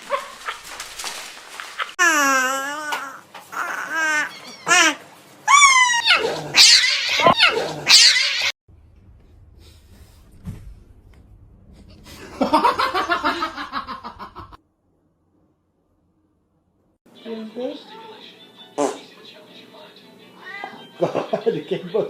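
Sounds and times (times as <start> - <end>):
pet animals crying: 1.8 - 8.5.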